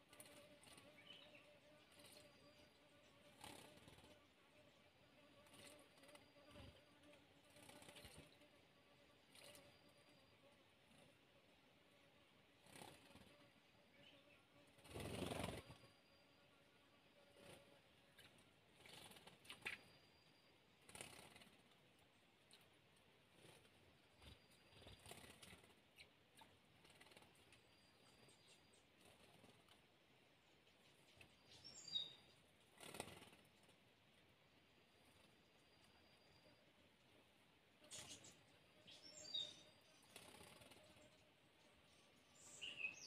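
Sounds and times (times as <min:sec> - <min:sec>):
bird chirping: 0:00.8 - 0:03.7, 0:26.9 - 0:29.4, 0:30.5 - 0:32.4, 0:37.8 - 0:43.0.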